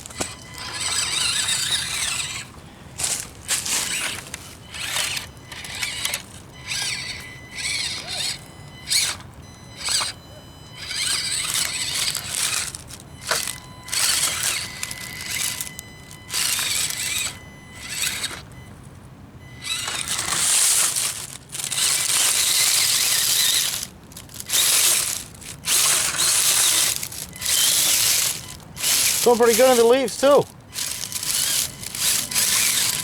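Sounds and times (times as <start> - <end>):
dry leaves crackling and crunching: 3.0 - 5.1, 11.4 - 18.3, 19.7 - 33.0.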